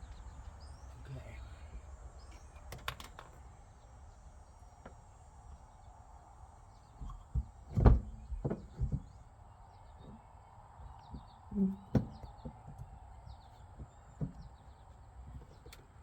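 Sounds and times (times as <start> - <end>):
dull knocks and thumps: 7.0 - 9.3, 11.1 - 15.8.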